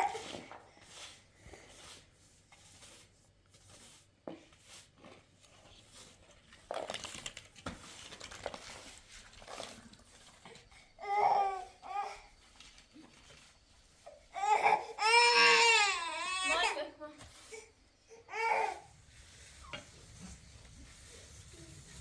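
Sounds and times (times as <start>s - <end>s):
soft rustling: 0.0s - 14.8s, 15.6s - 22.0s
child whimpering cry: 14.4s - 16.6s.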